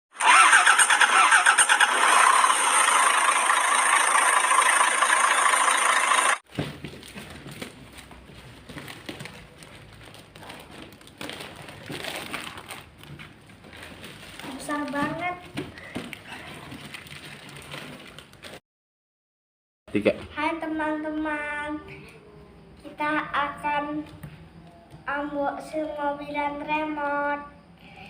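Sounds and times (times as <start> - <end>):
engine starting and running: 0.1 - 6.4.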